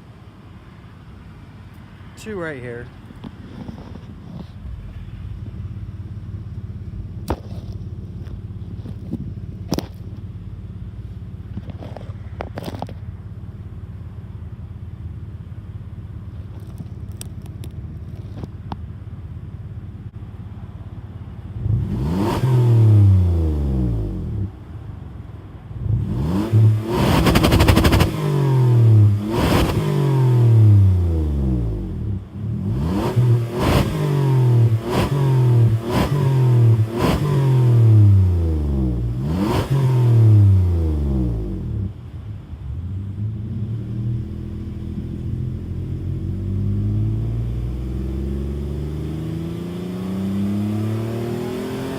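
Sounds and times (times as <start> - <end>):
car engine idling: 0.0 - 49.5
engine revving in blips: 21.6 - 24.6, 25.8 - 42.0, 42.7 - 51.9.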